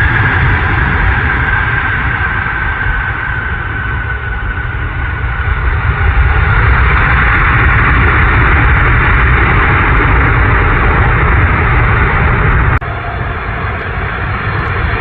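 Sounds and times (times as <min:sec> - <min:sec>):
jet engines of landing aircraft: 0:00.0 - 0:15.0.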